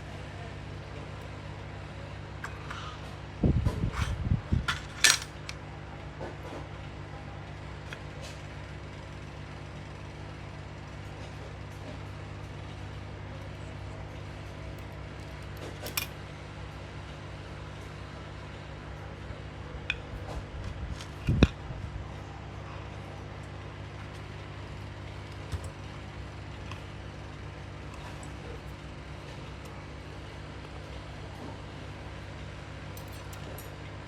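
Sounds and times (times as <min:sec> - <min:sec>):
clicks of small metal parts: 0:04.7 - 0:05.6, 0:15.8 - 0:16.1.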